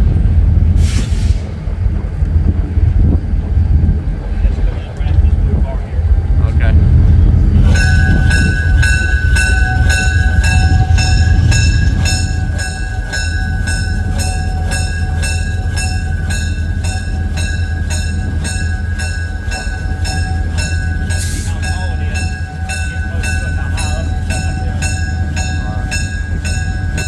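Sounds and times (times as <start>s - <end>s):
locomotive engine rumble: 0.0s - 27.0s
locomotive bell ringing: 4.4s - 27.0s.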